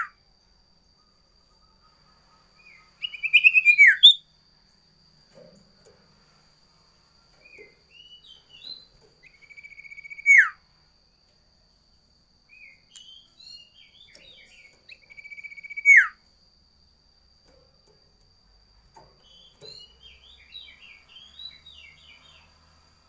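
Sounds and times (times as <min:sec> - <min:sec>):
songbird singing: 0:00.0 - 0:23.0.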